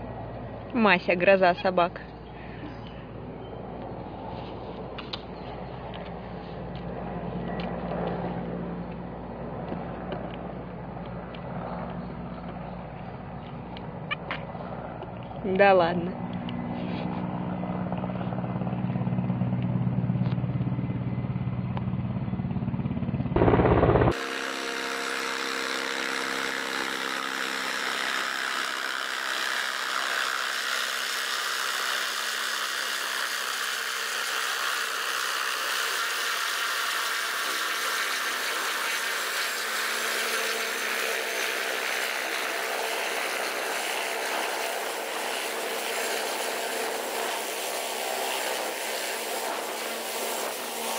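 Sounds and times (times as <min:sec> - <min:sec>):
helicopter engine and rotor drone: 0:00.0 - 0:50.9
turbine whine with hiss: 0:23.4 - 0:50.9.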